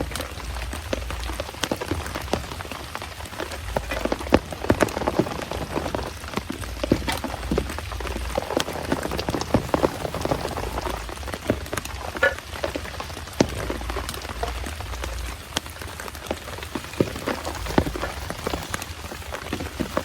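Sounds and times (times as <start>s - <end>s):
heavy rain falling: 0.0s - 20.0s
raindrops tapping a surface: 0.0s - 20.0s.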